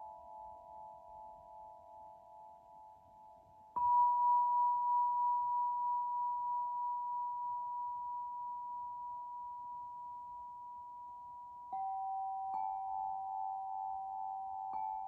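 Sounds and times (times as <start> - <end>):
high bell-like tone ringing: 3.8 - 15.0.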